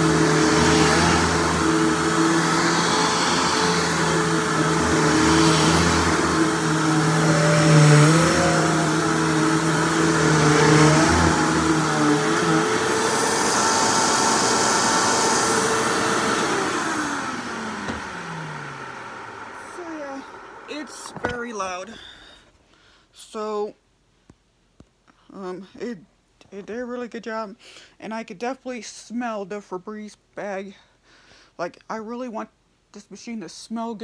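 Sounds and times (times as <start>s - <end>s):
vacuum motor winding down: 0.0s - 21.5s
vacuum cleaner motor running: 0.0s - 21.8s.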